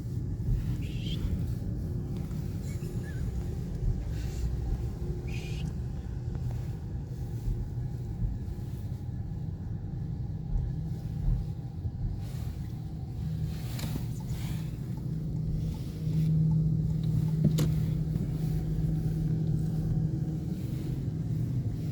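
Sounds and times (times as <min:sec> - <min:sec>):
hum: 0:00.0 - 0:21.9
low engine rumble: 0:00.0 - 0:21.9.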